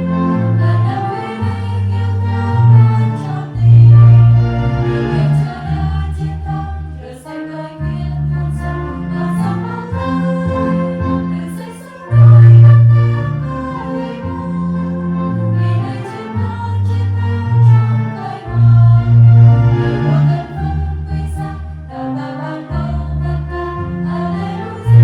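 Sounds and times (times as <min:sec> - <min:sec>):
choir singing a hymn: 0:00.0 - 0:25.0
sustained keyboard chords: 0:00.0 - 0:25.0
strong bass line: 0:01.9 - 0:06.4, 0:12.1 - 0:13.8, 0:17.2 - 0:21.6.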